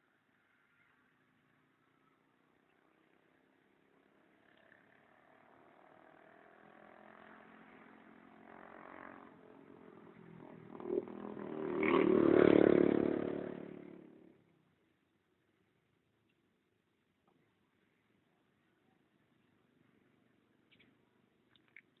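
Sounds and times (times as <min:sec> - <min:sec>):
engine passing by: 0:04.2 - 0:14.4.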